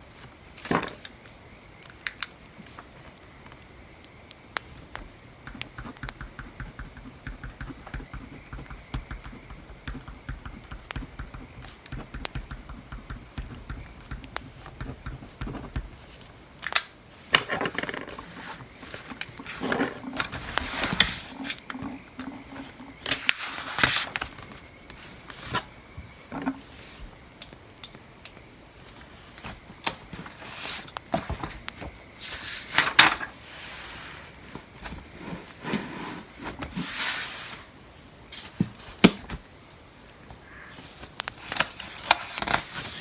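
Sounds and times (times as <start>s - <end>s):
pencil scratching on paper: 5.5s - 15.9s
paper rustling: 17.5s - 25.7s.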